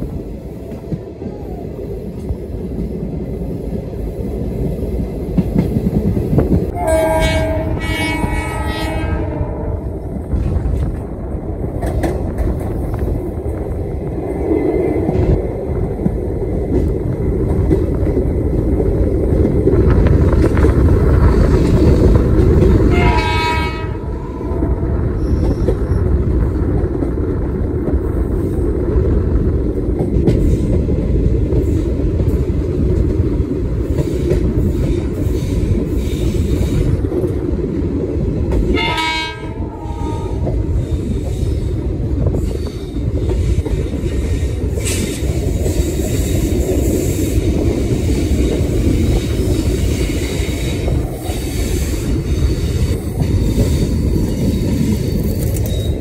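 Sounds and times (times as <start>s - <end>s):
train wheels rumbling on rails: 0.0s - 56.0s
locomotive horn: 6.7s - 9.9s, 22.9s - 24.5s, 38.7s - 40.4s.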